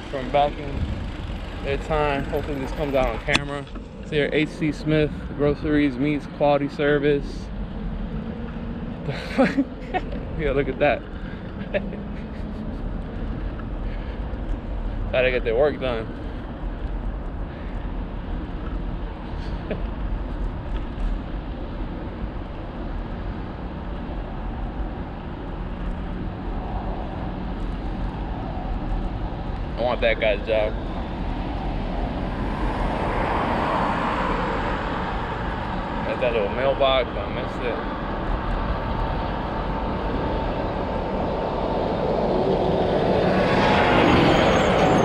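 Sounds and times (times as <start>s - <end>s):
road traffic noise: 0.0s - 45.0s
rumbling wind: 0.0s - 45.0s
bicycle rolling noise: 7.5s - 36.5s.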